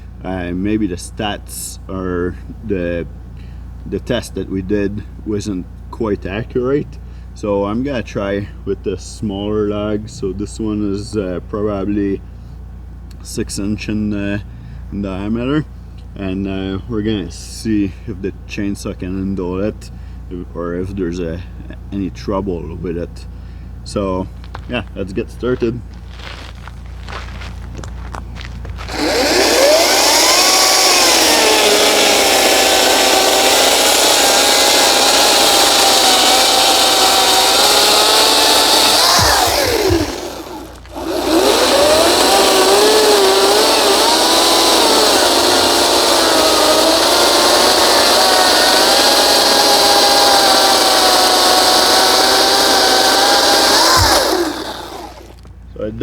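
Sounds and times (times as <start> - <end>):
electric chainsaw cutting log: 28.8 - 55.5.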